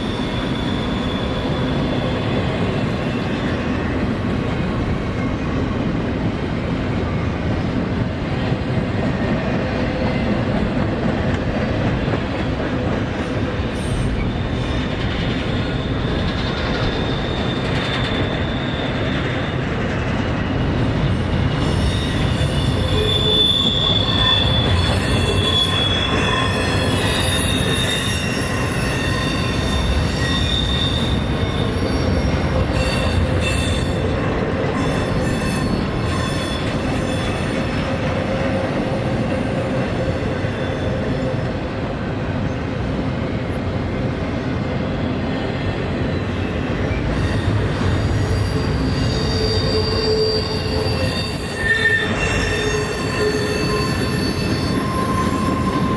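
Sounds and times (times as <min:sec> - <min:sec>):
wheel squeals: 0:00.0 - 0:04.0, 0:13.3 - 0:41.6, 0:46.8 - 0:55.9
freight train rumbling: 0:00.0 - 0:55.9.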